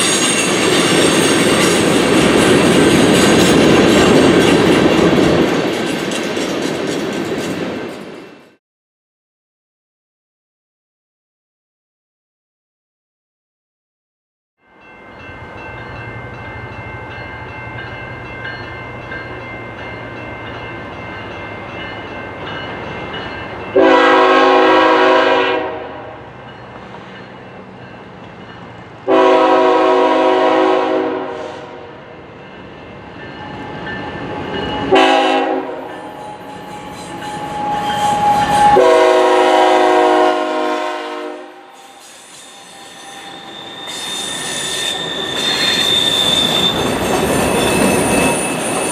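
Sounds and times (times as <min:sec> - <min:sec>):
locomotive air horn blasts: 0:23.8 - 0:26.2, 0:29.1 - 0:32.0, 0:34.9 - 0:36.6, 0:37.4 - 0:42.0.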